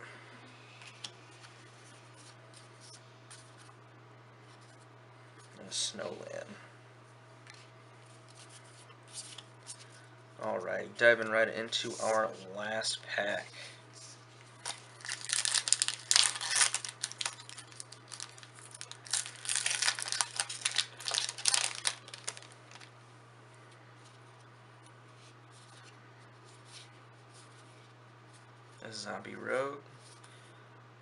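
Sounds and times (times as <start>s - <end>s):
foil wrapper tearing and crinkling: 14.6s - 22.9s.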